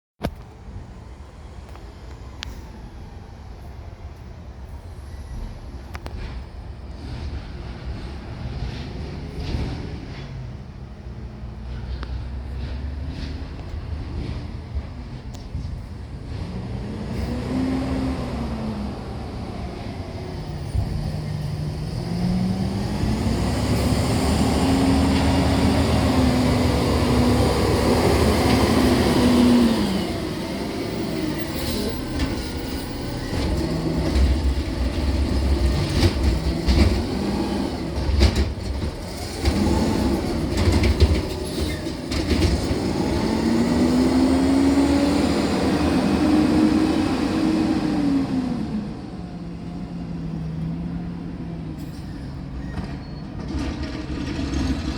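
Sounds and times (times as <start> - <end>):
garbage truck engine revving: 16.3 - 49.5.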